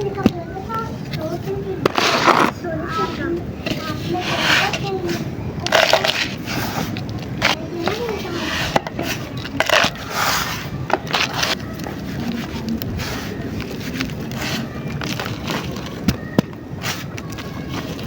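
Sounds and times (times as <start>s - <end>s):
dry chunks crushed by hand: 13.6s - 18.0s.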